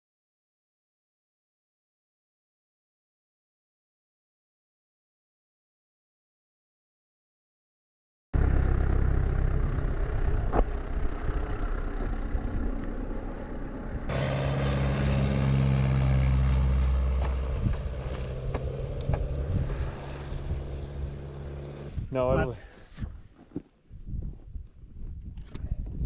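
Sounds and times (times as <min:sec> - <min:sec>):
light aircraft engine running: 0:08.4 - 0:22.6
wind noise: 0:17.2 - 0:26.0.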